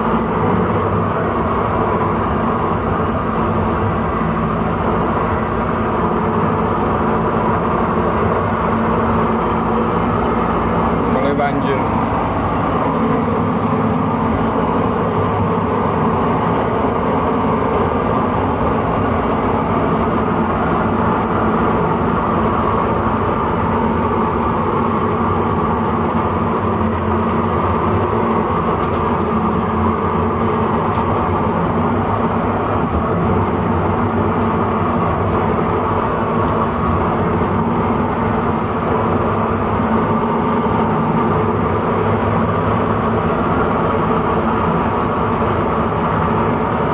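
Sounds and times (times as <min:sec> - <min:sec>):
truck engine droning: 0:00.0 - 0:46.9.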